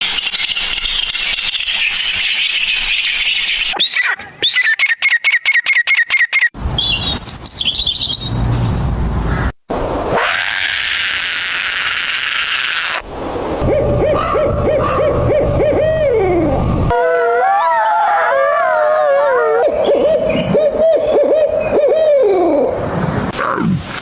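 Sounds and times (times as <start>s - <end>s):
bird chirping: 0.3s - 9.4s
low rumble: 13.1s - 17.0s
bird warbling: 13.7s - 16.7s.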